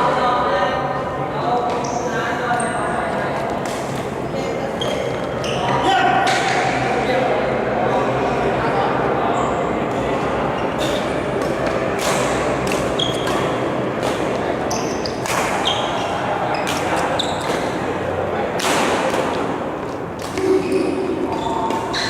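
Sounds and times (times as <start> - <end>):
hum of echoing voices: 0.0 - 22.0
court shoes squeaking: 1.5 - 6.8, 9.3 - 22.0
rackets striking shuttlecock: 10.9 - 16.0, 16.6 - 17.8, 18.6 - 22.0.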